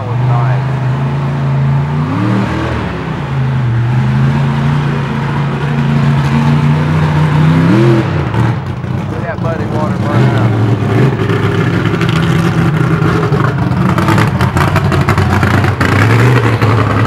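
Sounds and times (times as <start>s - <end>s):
truck engine revving high: 0.0s - 17.0s.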